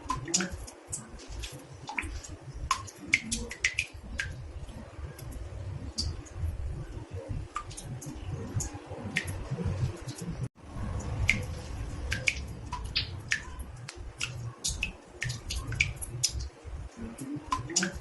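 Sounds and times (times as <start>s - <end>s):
water drops plinking into bathtub: 0.0s - 6.4s, 10.9s - 18.0s
steady low rumble: 0.0s - 17.8s.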